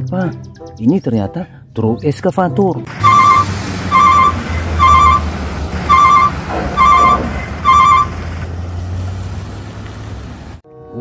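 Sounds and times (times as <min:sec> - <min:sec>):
diesel truck engine rumble: 0:02.9 - 0:10.6
electronic warning beeper: 0:03.0 - 0:08.3.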